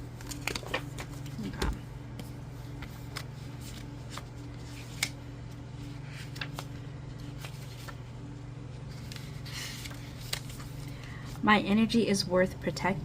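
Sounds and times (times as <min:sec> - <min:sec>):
cards and paper rustling: 0:00.0 - 0:11.4
steady low hum: 0:00.0 - 0:13.0.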